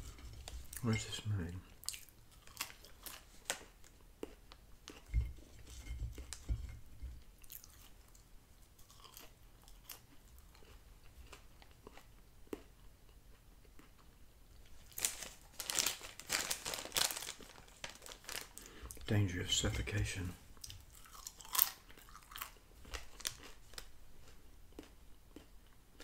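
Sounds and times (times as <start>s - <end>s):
chewing with mouth clicks: 1.6s - 5.1s, 7.4s - 14.7s, 20.6s - 26.0s
plastic bag crinkling: 14.8s - 20.2s, 21.6s - 23.9s.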